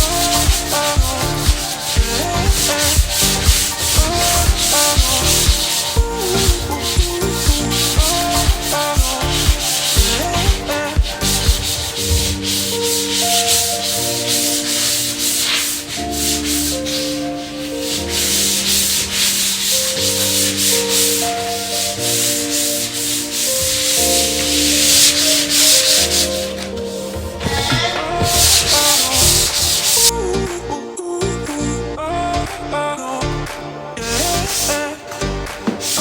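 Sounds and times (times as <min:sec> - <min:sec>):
background music with held chords: 0:00.0 - 0:36.0
loud rasping hiss: 0:00.1 - 0:26.6.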